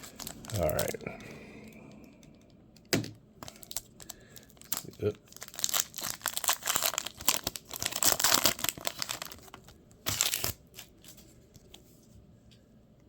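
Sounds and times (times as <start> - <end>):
wrapper tearing and crinkling: 0.0 - 1.0, 3.4 - 11.2.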